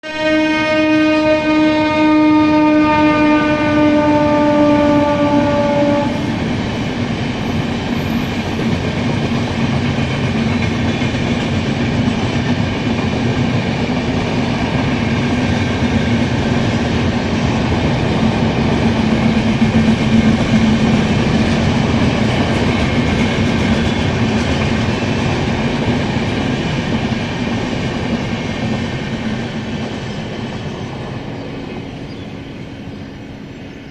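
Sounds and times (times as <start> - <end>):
locomotive horn blast: 0.0 - 6.4
train wheels clattering on rails: 4.1 - 33.9.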